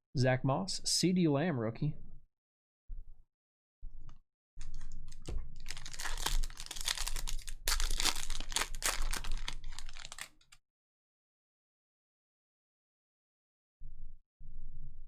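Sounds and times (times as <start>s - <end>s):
wrapper crinkling and tearing: 5.1s - 10.6s.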